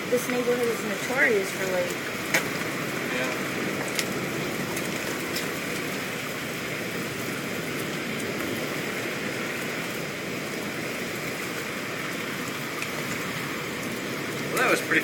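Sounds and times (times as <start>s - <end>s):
heavy rain hissing: 0.0s - 15.0s
single raindrops ticking: 0.2s - 6.2s, 11.2s - 14.8s.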